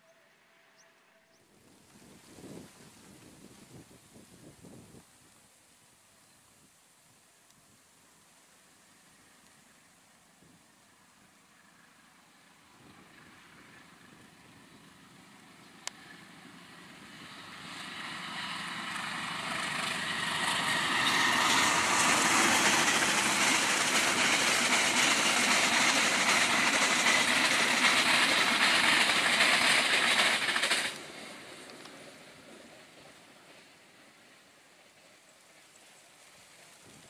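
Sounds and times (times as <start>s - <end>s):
passenger train passing on rails: 8.6s - 36.8s.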